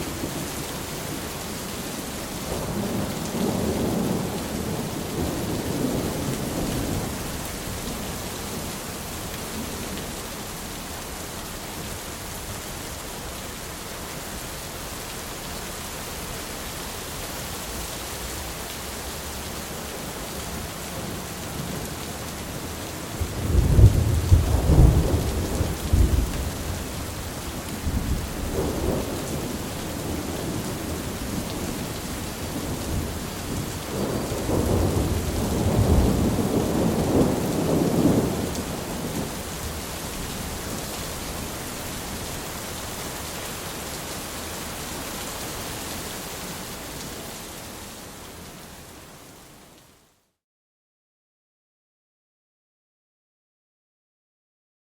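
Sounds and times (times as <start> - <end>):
steady rain hissing: 0.0 - 50.4
thunder rumbling: 23.2 - 40.8.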